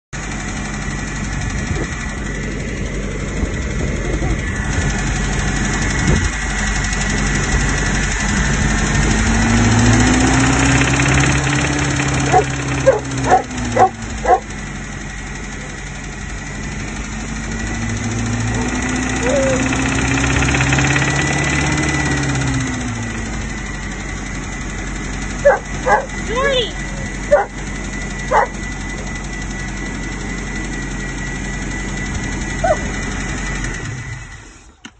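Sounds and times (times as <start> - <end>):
engine running and revving: 0.2 - 34.9
dog barking: 12.3 - 14.5, 25.4 - 26.2, 27.3 - 27.5, 28.3 - 28.5, 32.6 - 32.9.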